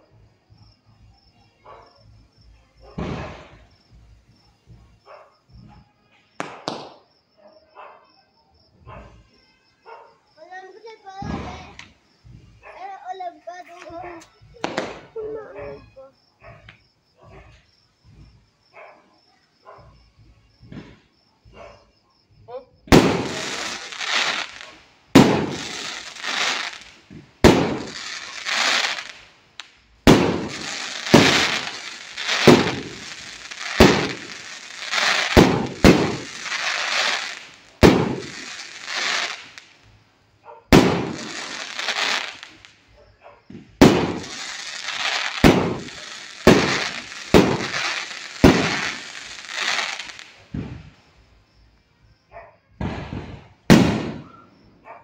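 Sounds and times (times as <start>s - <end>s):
fireworks bangs: 2.0s - 7.1s, 10.4s - 15.9s, 19.8s - 21.2s, 22.8s - 40.0s, 40.7s - 42.8s, 43.5s - 51.4s, 52.8s - 54.7s
crackling hiss of bursting stars: 10.4s - 12.5s, 22.9s - 40.0s, 40.7s - 42.8s, 43.7s - 51.2s.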